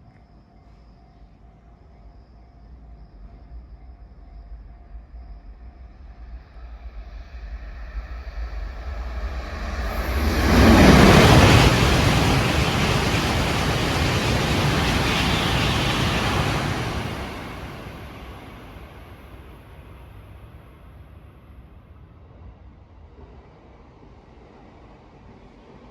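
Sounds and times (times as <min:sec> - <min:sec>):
bullet train passing at speed: 0:07.4 - 0:21.6.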